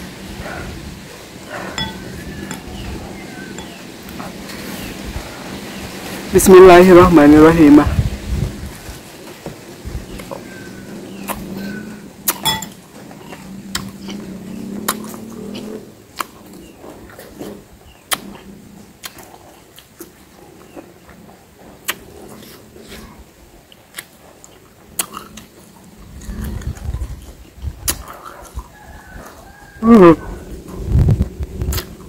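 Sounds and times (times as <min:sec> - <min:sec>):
metal fork clinking on glass bowl: 0:01.8 - 0:02.6, 0:12.4 - 0:12.8
wet mouth clicks: 0:12.2 - 0:12.4, 0:13.7 - 0:14.2, 0:18.1 - 0:20.2, 0:21.8 - 0:23.1, 0:23.7 - 0:25.5, 0:26.2 - 0:28.6, 0:31.6 - 0:32.0
person chewing softly: 0:13.0 - 0:32.0
low rumble: 0:30.2 - 0:32.0.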